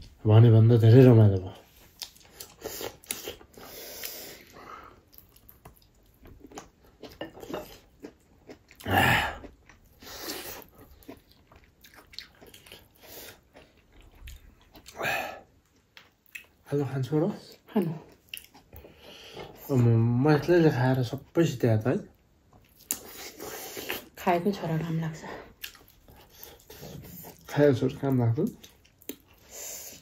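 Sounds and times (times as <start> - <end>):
person chewing and biting food: 1.9 - 16.6, 22.6 - 24.1, 25.6 - 27.5.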